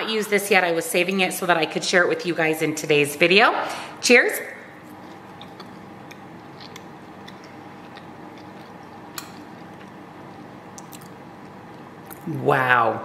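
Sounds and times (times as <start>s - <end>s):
low room hum: 0.0s - 13.0s
faint closed-mouth chewing: 4.8s - 10.0s, 10.7s - 12.3s.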